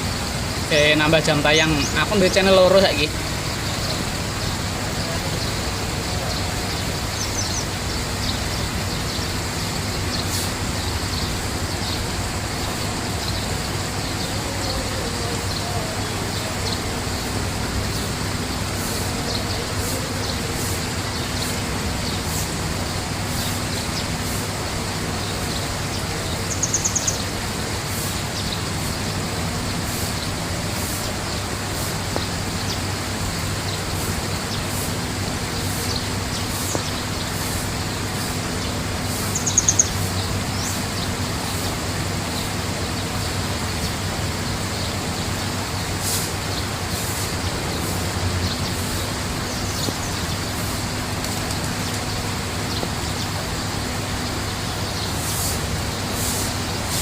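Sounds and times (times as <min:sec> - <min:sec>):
small birds chirping: 0:00.0 - 0:57.0
bird rapid high trill: 0:33.6 - 0:41.7.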